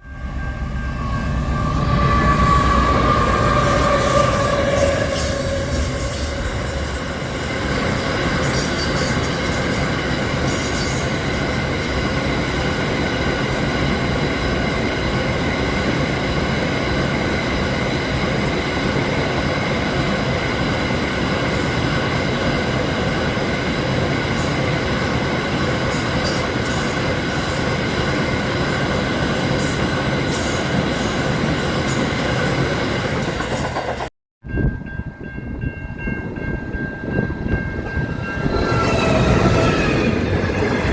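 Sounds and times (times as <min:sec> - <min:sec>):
whining tones: 0:00.0 - 0:08.6
train rumbling: 0:00.0 - 0:40.9.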